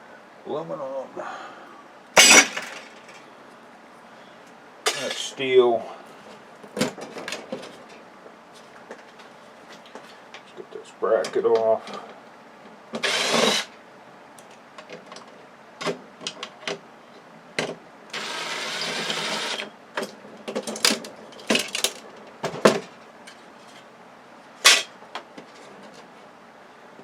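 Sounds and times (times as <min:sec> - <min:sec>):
power screwdriver whirring: 0:02.2 - 0:02.8, 0:13.0 - 0:13.7, 0:18.2 - 0:19.7.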